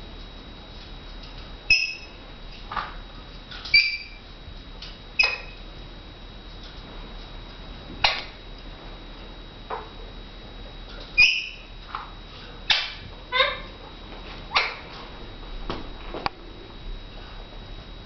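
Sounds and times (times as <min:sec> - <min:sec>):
parakeet sharp calls: 0:01.7 - 0:02.1, 0:11.2 - 0:11.7.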